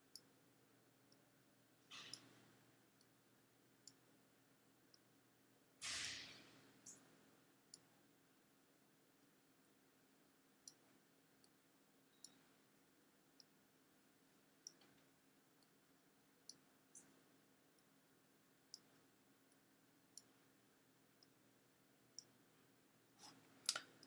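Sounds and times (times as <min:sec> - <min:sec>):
computer mouse clicks: 0:01.9 - 0:02.4, 0:05.8 - 0:07.1, 0:23.2 - 0:24.0.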